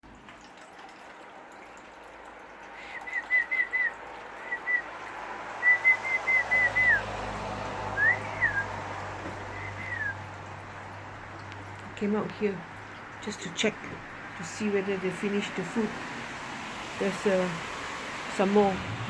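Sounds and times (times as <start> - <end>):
rising and falling whistle: 5.6 - 7.1, 7.9 - 8.8, 9.5 - 10.2.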